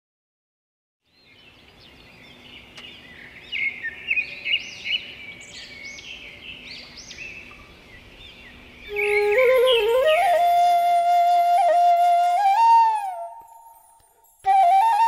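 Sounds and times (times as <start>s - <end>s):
birds chirping: 1.0s - 10.6s
faint outdoor background: 1.0s - 15.0s.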